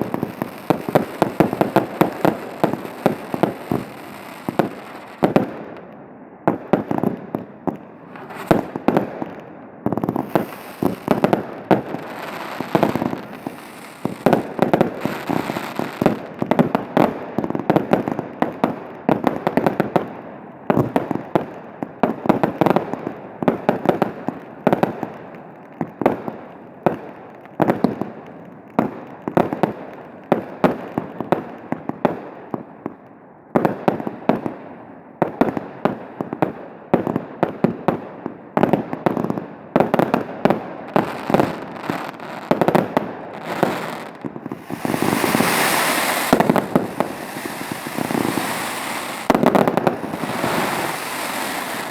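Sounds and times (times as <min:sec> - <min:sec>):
fireworks bursts and bangs: 0:00.0 - 0:05.8, 0:06.5 - 0:32.7, 0:33.6 - 0:51.9
fireworks crackling and hissing: 0:00.0 - 0:05.9, 0:06.5 - 0:21.5, 0:38.6 - 0:51.9.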